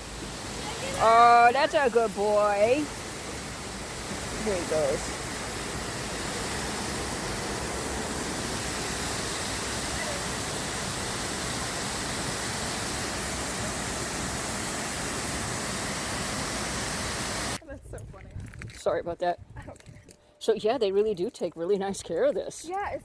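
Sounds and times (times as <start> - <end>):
waterfall rushing: 0.0 - 17.6.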